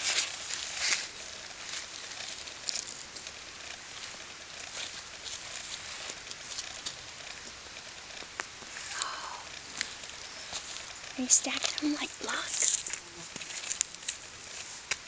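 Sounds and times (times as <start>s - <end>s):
steady hiss: 0.0s - 15.0s
small rocks clicking and scuffing: 9.7s - 15.0s.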